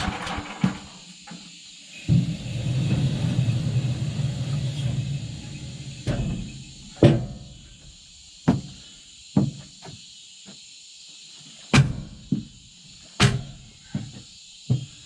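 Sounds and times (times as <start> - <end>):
low engine rumble: 1.9 - 7.7.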